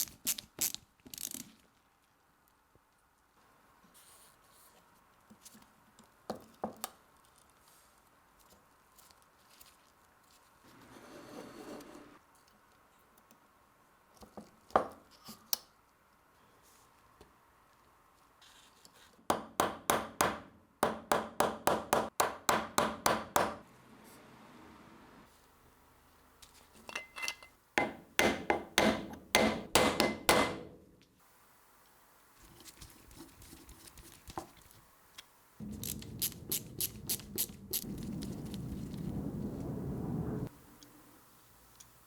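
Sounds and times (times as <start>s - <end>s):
hammer tapping: 19.3s - 23.6s, 27.8s - 30.8s.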